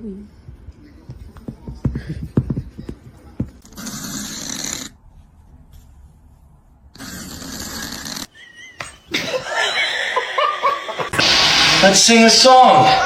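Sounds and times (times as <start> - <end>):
cat snoring: 3.7 - 5.0, 7.0 - 8.3.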